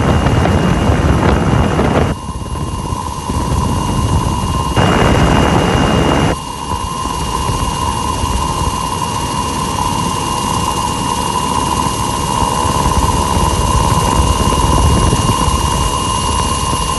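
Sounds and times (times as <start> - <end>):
loud rush of noise: 0.0 - 7.6
helicopter rotor chop: 0.0 - 16.9
helicopter turbine whine: 0.0 - 16.9.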